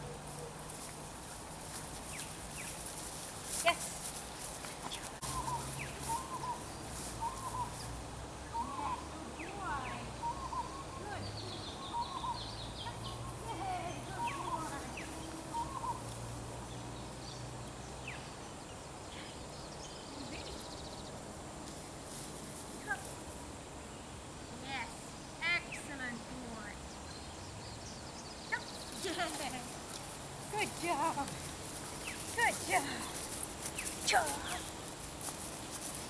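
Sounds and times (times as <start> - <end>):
birds calling: 2.0 - 21.2, 23.9 - 36.0
higher bird chirps: 4.9 - 16.1.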